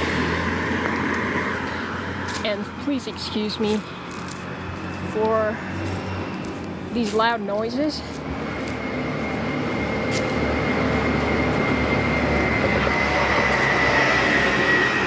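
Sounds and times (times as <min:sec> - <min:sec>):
road vehicle noise: 0:00.0 - 0:15.0
thin high whine: 0:08.1 - 0:15.0.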